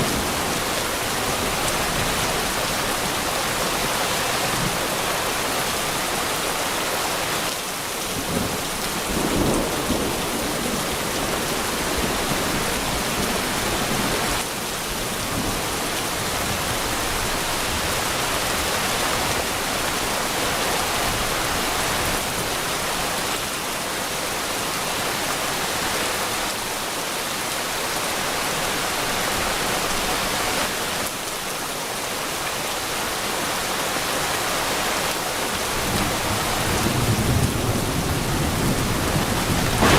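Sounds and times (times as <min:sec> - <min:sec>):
steady rain falling: 0:00.0 - 0:39.9
low rumble of thunder: 0:08.2 - 0:14.3, 0:35.7 - 0:39.9.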